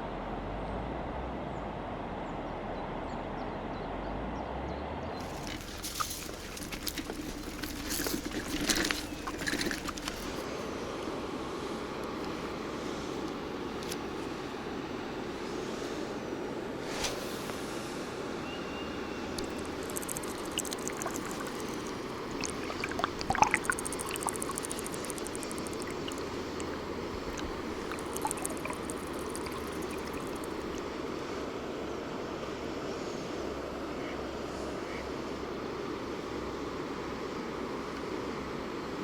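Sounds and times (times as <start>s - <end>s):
water running: 5.2s - 10.4s, 19.3s - 30.8s.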